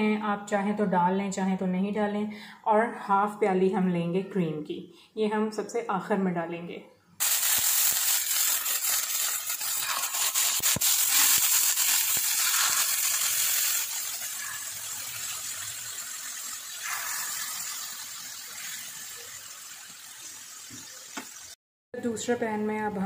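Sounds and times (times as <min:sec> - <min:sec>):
chicken sizzling in oil: 0:07.2 - 0:21.6.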